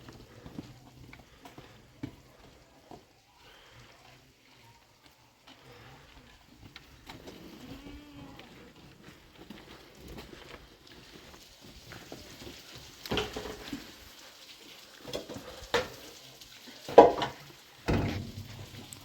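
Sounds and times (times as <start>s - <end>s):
faint handling clatter: 17.0s - 19.0s
sudden knocks and thumps: 17.9s - 19.0s.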